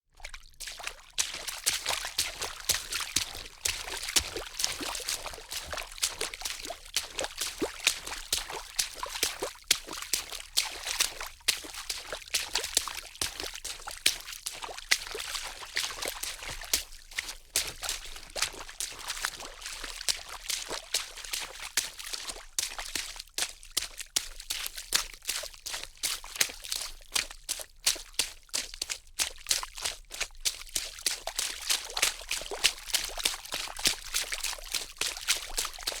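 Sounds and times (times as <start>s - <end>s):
water pouring and splattering: 0.2s - 22.8s.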